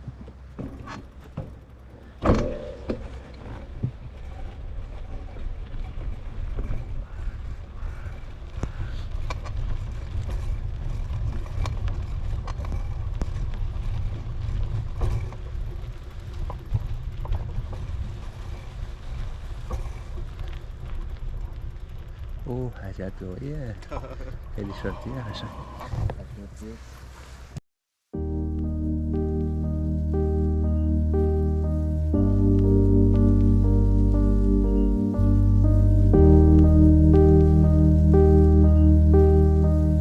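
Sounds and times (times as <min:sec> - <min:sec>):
bicycle clicks and rattles: 0:00.6 - 0:23.9.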